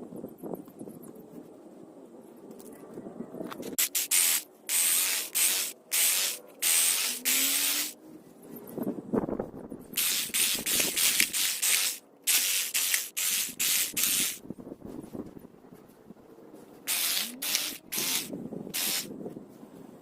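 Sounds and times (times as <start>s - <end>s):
spray bottle squirting: 3.8s - 8.0s, 10.0s - 14.4s, 16.9s - 19.1s.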